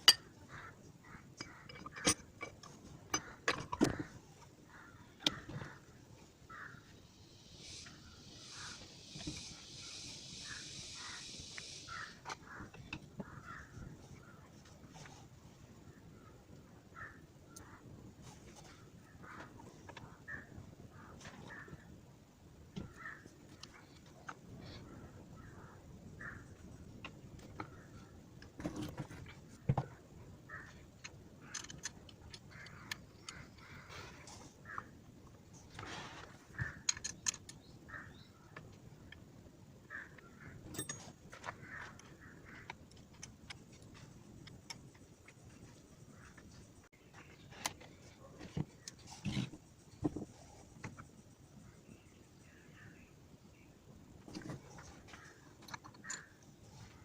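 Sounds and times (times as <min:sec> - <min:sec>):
birds calling: 0:00.0 - 0:22.0, 0:22.8 - 0:57.0
steady high hiss: 0:05.7 - 0:28.5.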